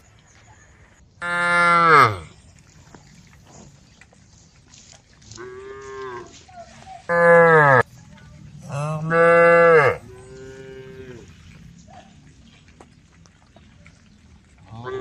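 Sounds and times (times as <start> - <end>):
cow mooing: 1.2 - 2.3, 7.1 - 7.8, 8.6 - 11.3.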